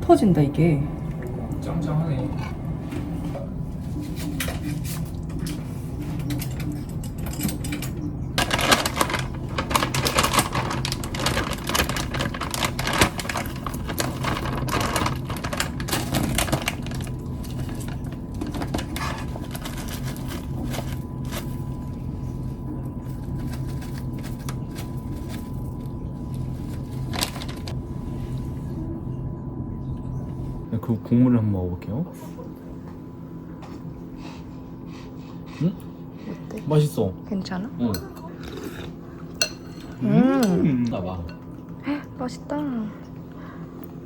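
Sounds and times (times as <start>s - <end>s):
steady low hum: 0.0s - 44.0s
dishes and utensils clattering: 4.3s - 11.9s, 37.9s - 40.6s.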